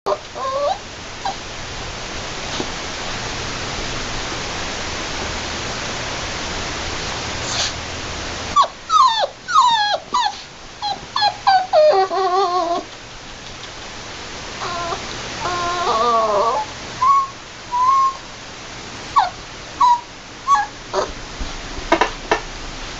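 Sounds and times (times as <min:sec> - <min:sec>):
puppy whimpering and yipping: 0:00.1 - 0:01.4, 0:08.6 - 0:12.9, 0:14.6 - 0:18.2, 0:19.1 - 0:21.2
steady hiss: 0:00.1 - 0:22.9.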